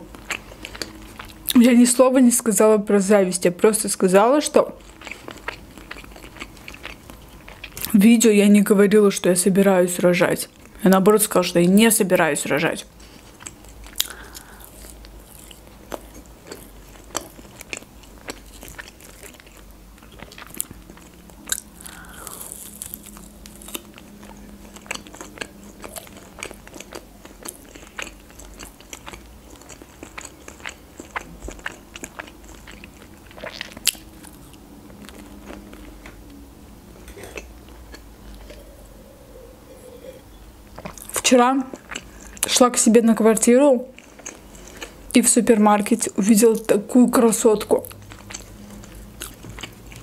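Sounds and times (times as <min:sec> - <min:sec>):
chewing crispy food crunches: 0:00.0 - 0:01.6, 0:04.8 - 0:08.0, 0:13.0 - 0:36.2, 0:43.9 - 0:45.1, 0:47.7 - 0:50.0.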